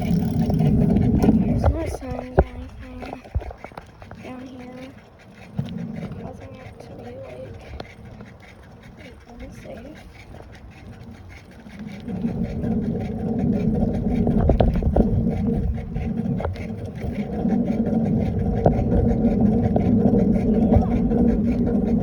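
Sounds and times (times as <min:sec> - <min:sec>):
bicycle clicks and rattles: 0:00.0 - 0:22.0
bicycle tyres rolling on pavement: 0:00.0 - 0:22.0
wind buffeting microphone: 0:00.0 - 0:22.0.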